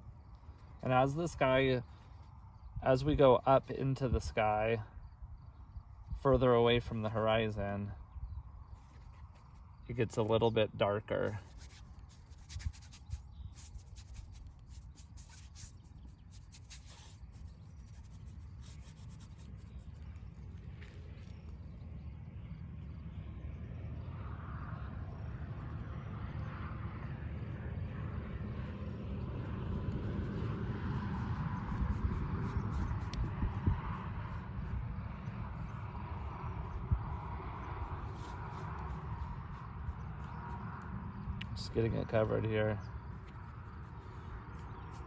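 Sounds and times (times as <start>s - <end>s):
distant engine drone: 0.0s - 45.0s
brush scratching on canvas: 0.5s - 2.4s, 8.7s - 10.3s, 11.2s - 20.0s, 30.9s - 34.9s, 35.5s - 40.8s, 43.1s - 45.0s.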